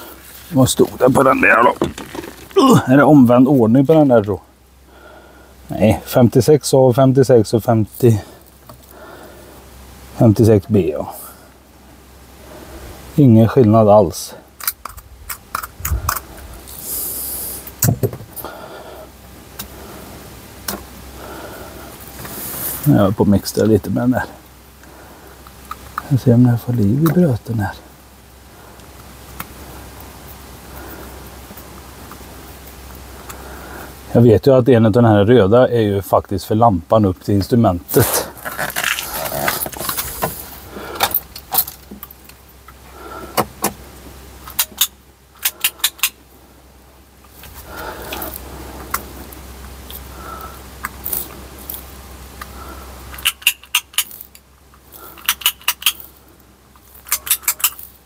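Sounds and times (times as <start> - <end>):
faint low hum: 0.0 - 58.0
brief hiss: 16.7 - 17.8
sharp metallic clicks: 44.4 - 46.2, 53.1 - 54.4, 55.2 - 56.1
small metal parts rattling: 51.0 - 51.9, 53.1 - 56.2, 56.8 - 58.0.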